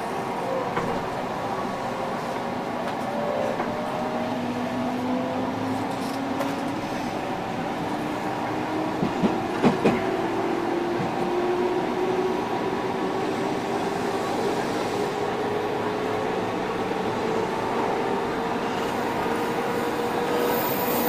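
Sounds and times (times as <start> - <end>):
electric train rolling with whine: 15.7 - 21.0.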